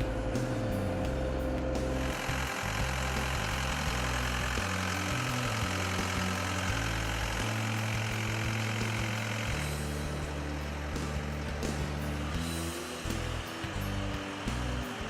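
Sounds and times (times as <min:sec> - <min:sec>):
background music bass notes: 0:00.0 - 0:15.0
diesel engine running: 0:00.0 - 0:15.0.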